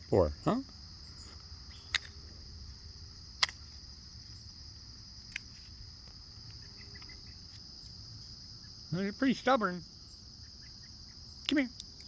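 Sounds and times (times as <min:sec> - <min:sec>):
crickets chirping: 0:00.0 - 0:12.0
sharp clicks: 0:03.4 - 0:03.6.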